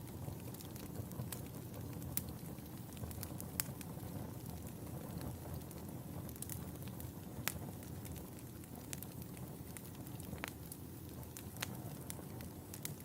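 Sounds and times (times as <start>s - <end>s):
fire crackling and popping: 0.0s - 13.0s
fire rumbling in fireplace: 0.0s - 13.0s.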